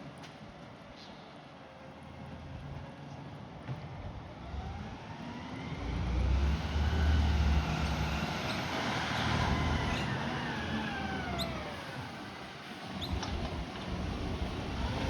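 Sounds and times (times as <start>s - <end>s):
garbage truck engine revving: 4.6s - 12.3s.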